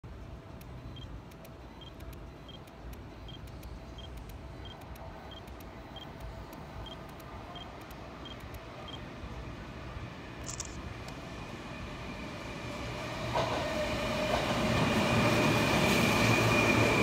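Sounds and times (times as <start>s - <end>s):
electric train rumbling: 0.0s - 17.0s
short high beeps: 10.4s - 10.8s.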